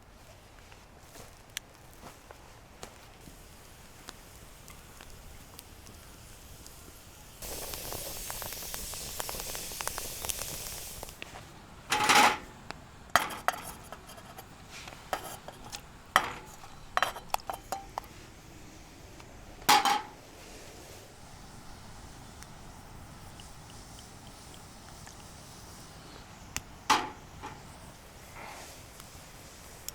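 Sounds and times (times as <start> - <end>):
steady hiss: 0.0 - 29.9
metal cookware clanking: 11.9 - 12.5, 15.2 - 18.0, 19.7 - 20.2, 26.9 - 27.6.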